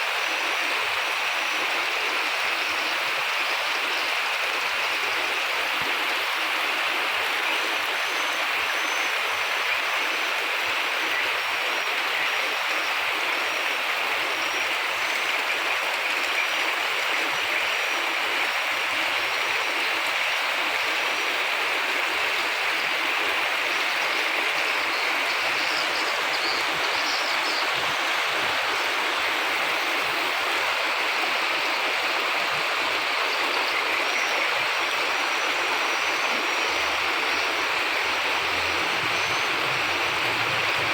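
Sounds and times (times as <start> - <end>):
steady rain: 0.0 - 40.9
faint high-pitched chirping: 23.7 - 29.0.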